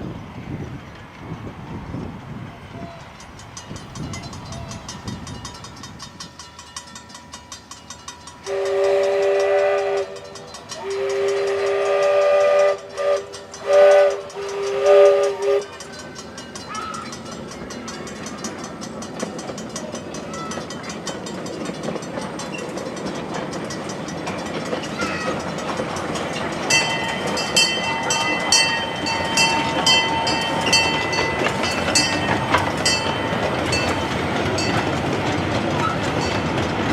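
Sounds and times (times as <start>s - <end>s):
train running: 0.0s - 36.9s
steam locomotive chime whistle: 2.7s - 19.0s, 26.2s - 34.9s.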